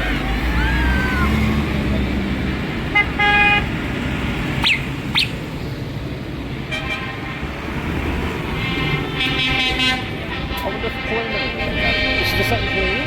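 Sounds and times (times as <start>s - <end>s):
tractor engines rumbling: 0.0s - 13.0s
vehicle horns tooting: 2.9s - 3.8s, 6.6s - 13.0s
quick falling whistles: 4.6s - 5.4s.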